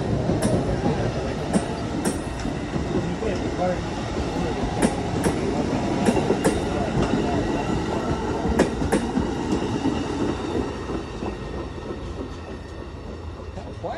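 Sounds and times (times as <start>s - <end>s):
train wheels rumbling on rails: 0.0s - 13.9s
wheels clicking over rail joints: 0.2s - 13.8s.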